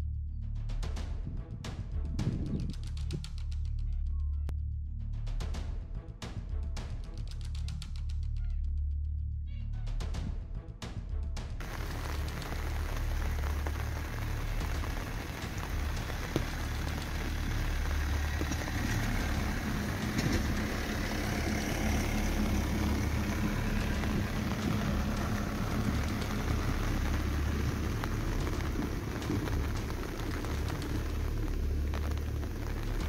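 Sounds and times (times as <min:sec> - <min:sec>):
low rumble: 0:00.0 - 0:05.9, 0:11.6 - 0:33.0
rain falling on water: 0:11.6 - 0:33.0.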